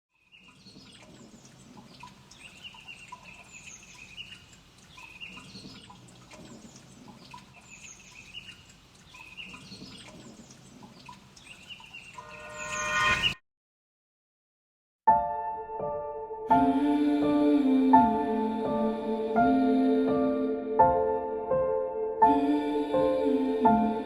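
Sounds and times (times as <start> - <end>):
songbirds chirping and trilling: 0.1 - 13.4.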